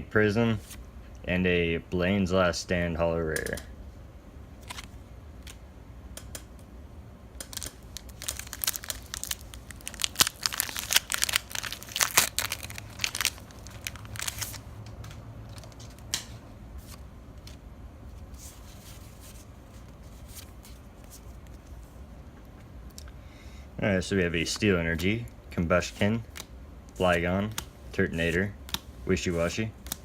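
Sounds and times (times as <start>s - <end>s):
foil wrapper crinkling and tearing: 7.4s - 14.8s.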